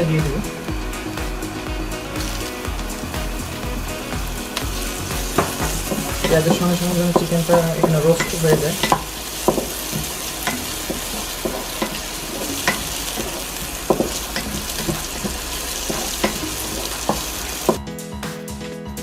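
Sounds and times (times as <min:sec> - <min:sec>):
food sizzling in oil: 0:00.0 - 0:17.8
utensil knocking against pan: 0:04.2 - 0:17.8.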